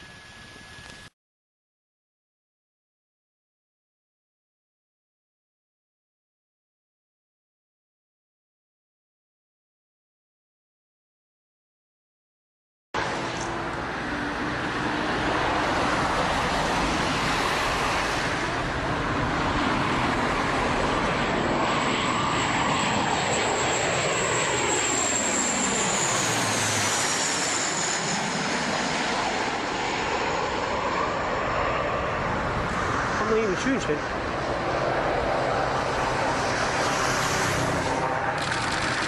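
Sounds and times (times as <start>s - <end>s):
jet engines roaring: 0.0s - 1.1s, 13.0s - 39.0s
high turbine whine: 0.0s - 1.2s, 13.0s - 39.0s.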